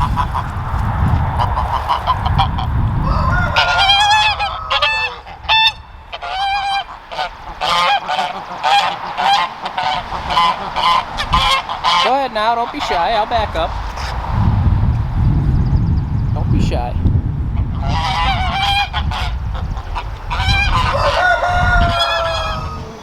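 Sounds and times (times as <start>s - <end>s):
geese honking: 0.0s - 14.2s, 17.6s - 23.0s
low rushing noise: 0.0s - 23.0s.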